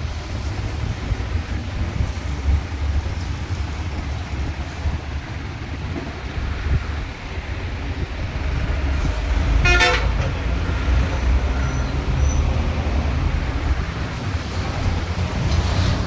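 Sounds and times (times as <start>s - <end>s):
low road traffic rumble: 0.0s - 16.0s
vehicle horn toot: 9.6s - 10.2s.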